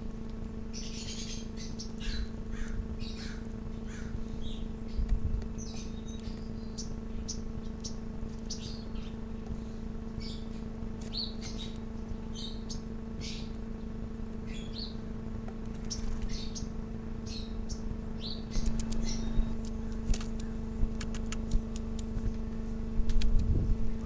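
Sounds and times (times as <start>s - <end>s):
steady low hum: 0.0s - 24.0s
small birds chirping: 0.6s - 22.5s
sharp clicks: 18.5s - 22.4s.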